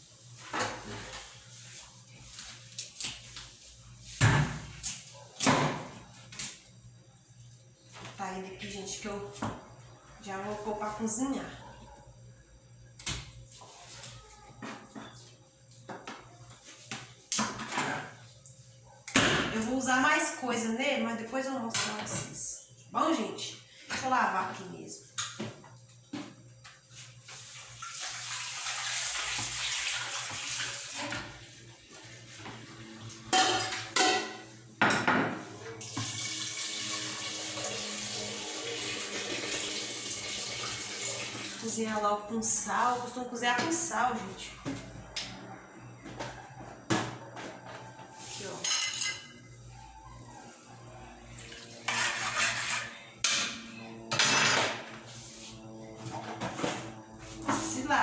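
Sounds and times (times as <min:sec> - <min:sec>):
pots and pans clattering: 0:17.4 - 0:18.2, 0:33.1 - 0:37.2, 0:48.5 - 0:49.4, 0:51.8 - 0:54.9
water running from tap: 0:26.9 - 0:32.0, 0:35.8 - 0:41.8
pot clanking: 0:33.3 - 0:35.1
tap running into sink: 0:35.8 - 0:37.8.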